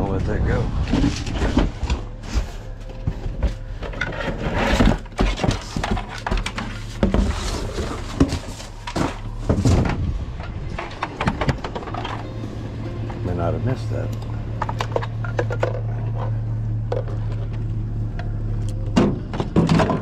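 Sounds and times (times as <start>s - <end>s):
steady low hum: 0.0s - 20.0s
objects rummaged in a box: 0.8s - 12.4s.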